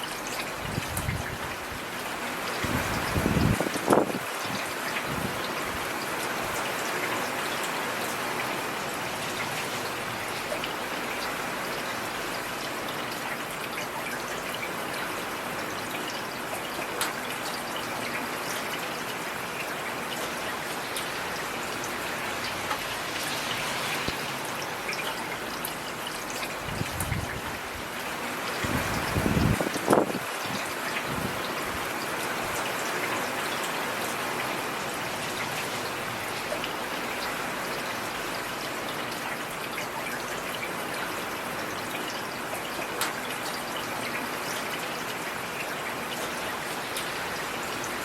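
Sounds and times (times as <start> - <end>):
heavy rain falling: 0.1 - 48.0
raindrops tapping a surface: 16.6 - 17.6, 20.1 - 24.3, 41.8 - 44.8.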